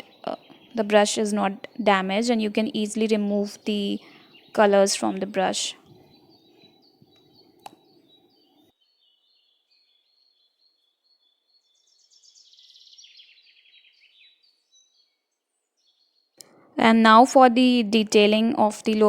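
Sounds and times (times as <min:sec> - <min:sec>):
bird chirps: 0:00.0 - 0:16.6.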